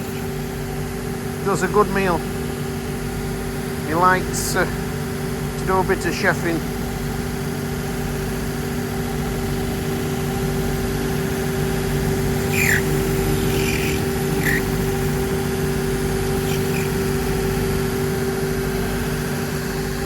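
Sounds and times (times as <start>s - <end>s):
machine motor humming: 10.9s - 20.0s
short squeaky scrapes: 12.4s - 17.7s.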